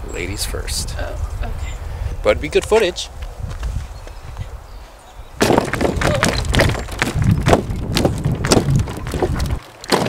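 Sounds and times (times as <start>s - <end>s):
footsteps on wooden planks: 2.7s - 4.5s, 5.4s - 10.0s.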